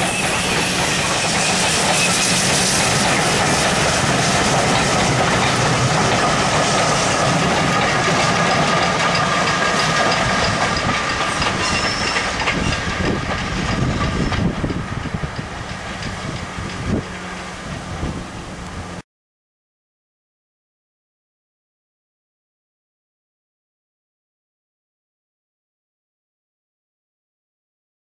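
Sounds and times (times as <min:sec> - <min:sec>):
train wheels clattering over track: 0:00.0 - 0:19.0.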